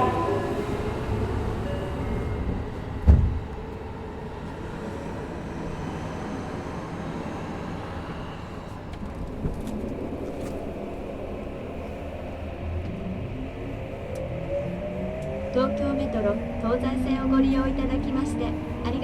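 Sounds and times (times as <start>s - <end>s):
train inverter rising tone: 0.0s - 19.0s
low rumble: 8.7s - 19.0s.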